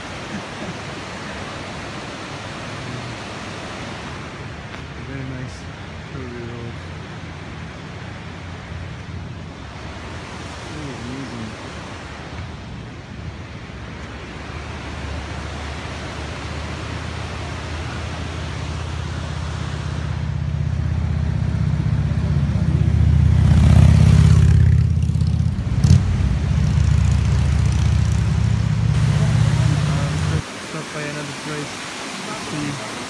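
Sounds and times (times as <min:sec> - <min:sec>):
road and wind noise: 0:00.0 - 0:33.0
motorcycle engine running: 0:20.4 - 0:30.4.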